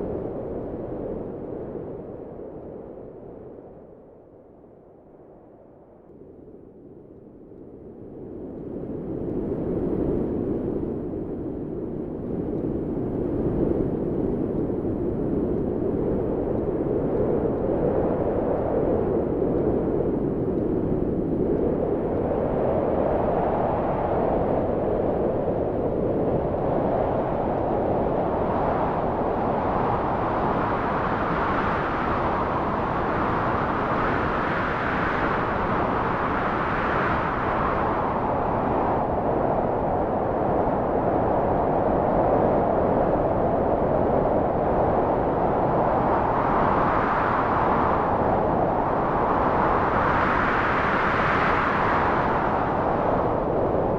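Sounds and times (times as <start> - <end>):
wind blowing: 13.2 - 53.9.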